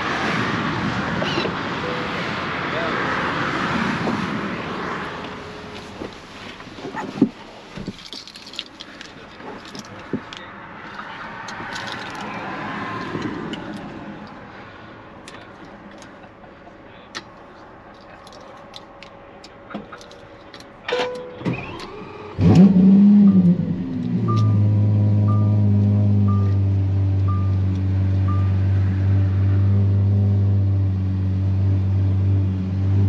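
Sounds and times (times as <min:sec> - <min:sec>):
key fob rattle: 0:07.9 - 0:12.3, 0:18.0 - 0:21.9
sports car engine revving: 0:21.6 - 0:33.0.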